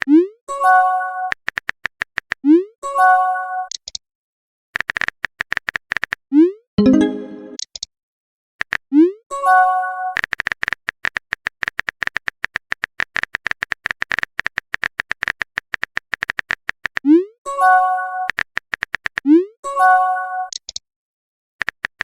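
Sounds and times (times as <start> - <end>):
rapid typing clicks: 1.4 - 2.4, 10.2 - 17.0, 18.3 - 19.2
brief message chime: 6.8 - 7.6.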